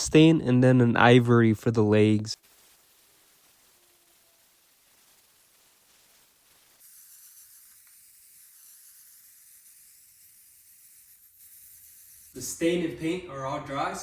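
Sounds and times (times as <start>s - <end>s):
paint spray hiss: 2.4s - 12.6s.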